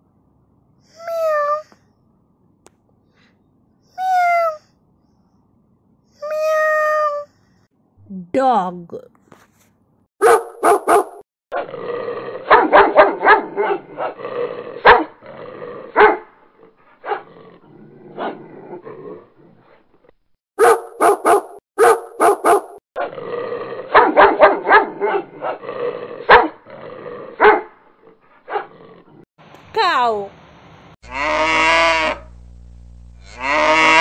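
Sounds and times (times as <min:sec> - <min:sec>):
dogs barking: 0:10.2 - 0:11.7, 0:12.4 - 0:14.2, 0:14.8 - 0:15.2, 0:15.9 - 0:16.3, 0:17.0 - 0:17.3, 0:20.6 - 0:22.8, 0:23.9 - 0:25.6, 0:26.2 - 0:26.6, 0:27.4 - 0:27.8, 0:28.5 - 0:28.7.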